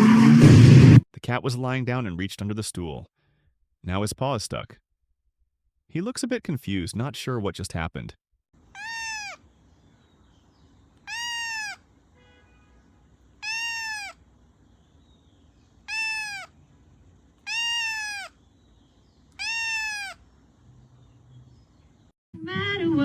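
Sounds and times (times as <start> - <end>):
cat meowing: 8.7 - 9.5, 11.0 - 11.9, 13.3 - 14.3, 15.8 - 16.6, 17.4 - 18.4, 19.3 - 20.3.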